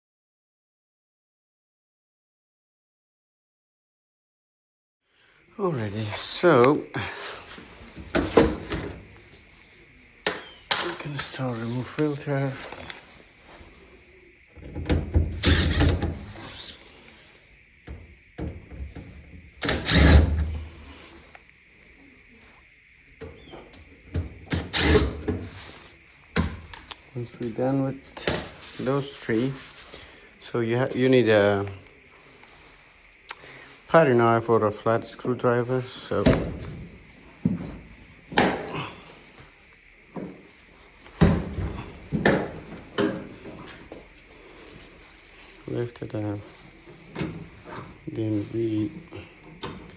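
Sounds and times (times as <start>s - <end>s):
plastic filter scraping and rattling: 14.6s - 16.8s.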